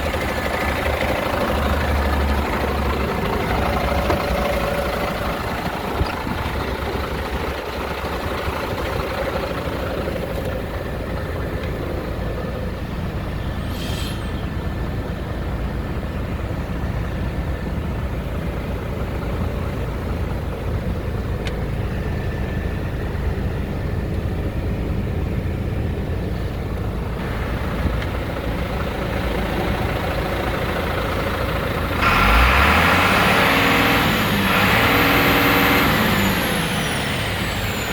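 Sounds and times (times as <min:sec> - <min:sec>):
truck diesel engine idling: 0:00.0 - 0:37.9
brief air hiss: 0:13.5 - 0:14.6.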